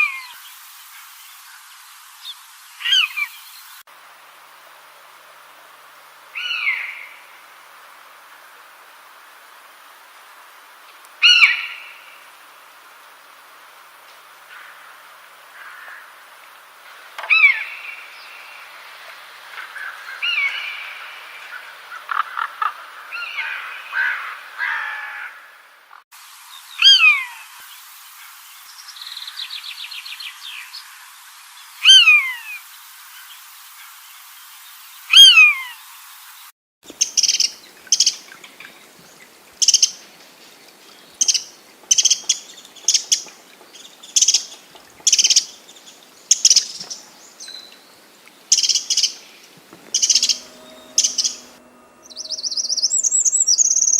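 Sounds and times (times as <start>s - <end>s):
birds chirping and singing: 48.5s - 53.9s
bird trill: 49.8s - 53.9s
bird whistle sliding downward: 49.8s - 53.9s
sharp high bird chirps: 49.8s - 53.9s.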